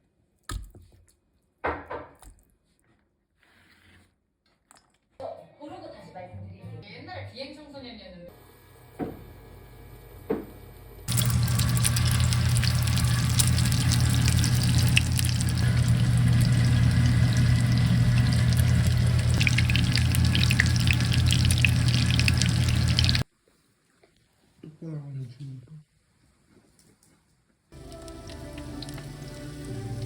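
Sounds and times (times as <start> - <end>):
water running into a sink: 11.1 - 23.2, 27.8 - 30.0.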